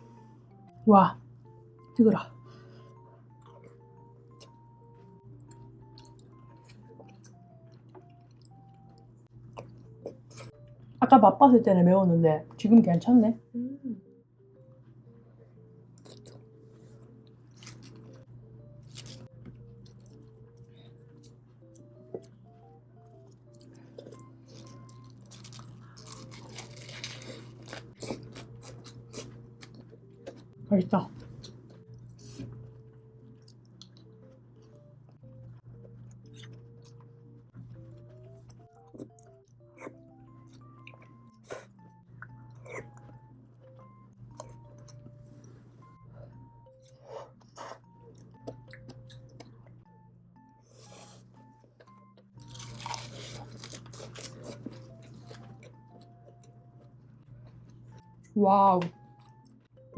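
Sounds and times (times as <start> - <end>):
plucked background music: 0.0 - 59.9
person chewing food: 3.3 - 10.6, 16.0 - 18.2, 18.8 - 30.6, 31.2 - 49.9, 50.6 - 58.4
crunchy chewing: 17.4 - 18.2, 23.2 - 30.5, 50.7 - 56.9.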